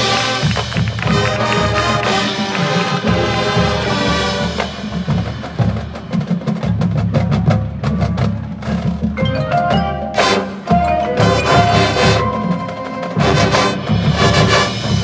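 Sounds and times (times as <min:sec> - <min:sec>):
marching band playing: 0:00.0 - 0:15.0
sharp percussion hits: 0:09.7 - 0:15.0.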